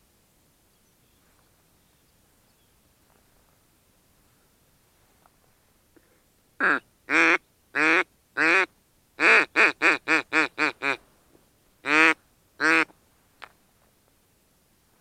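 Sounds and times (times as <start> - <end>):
duck quacking: 6.6 - 11.0, 11.8 - 12.9.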